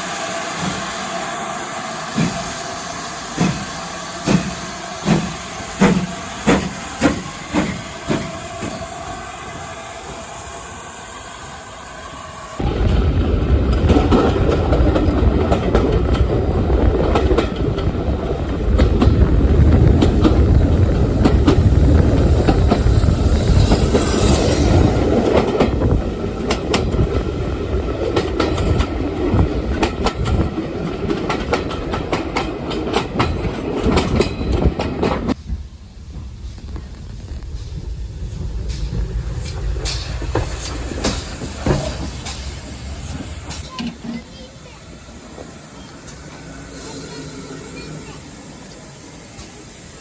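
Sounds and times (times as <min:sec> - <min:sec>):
steam train rumbling: 0:00.0 - 0:50.0.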